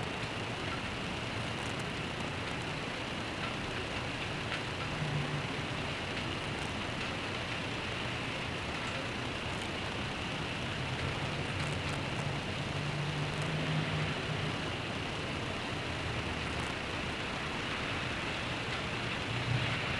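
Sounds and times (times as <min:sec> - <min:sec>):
background traffic: 0:00.0 - 0:19.9
rain hiss: 0:04.2 - 0:19.9.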